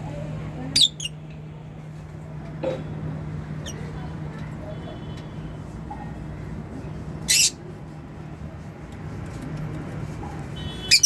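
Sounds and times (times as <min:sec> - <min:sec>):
lovebird screeching: 0:00.8 - 0:01.1.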